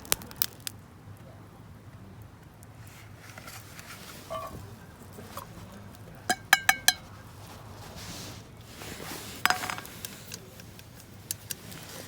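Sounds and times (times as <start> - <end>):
cookware clinking: 4.3 - 4.7, 6.3 - 7.2, 9.4 - 10.4.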